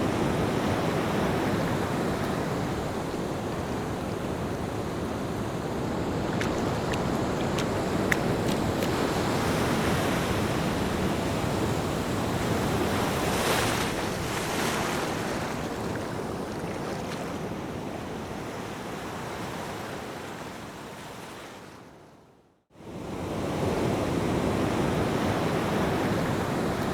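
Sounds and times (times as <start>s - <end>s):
ocean waves breaking: 0.0s - 17.8s.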